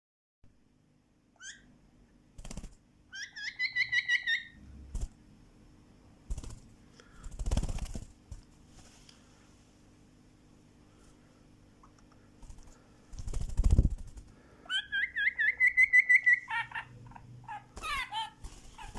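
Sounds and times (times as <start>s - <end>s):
pet bird chirping: 1.4s - 1.7s, 3.1s - 4.6s, 14.7s - 18.9s.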